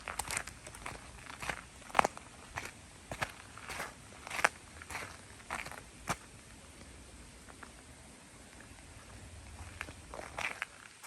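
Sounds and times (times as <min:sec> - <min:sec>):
footsteps crunching on trail: 0:00.0 - 0:06.3, 0:09.4 - 0:11.0.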